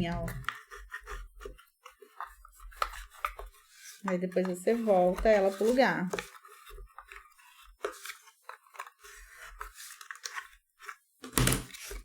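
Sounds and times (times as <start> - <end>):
paper box crinkling: 0.0 - 12.0.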